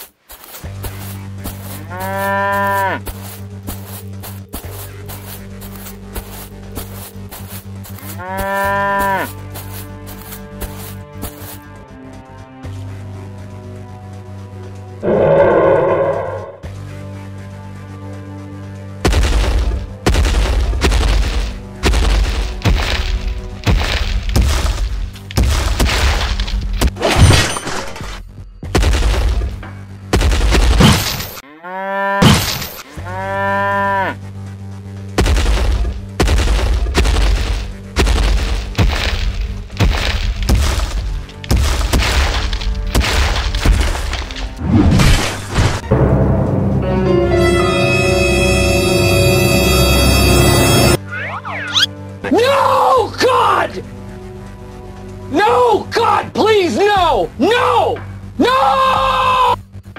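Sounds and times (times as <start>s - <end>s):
low music drone: 0.7s - 25.4s, 45.7s - 56.0s
cow mooing: 1.8s - 3.0s, 8.0s - 9.3s, 15.0s - 16.6s, 31.4s - 32.2s, 32.9s - 34.2s.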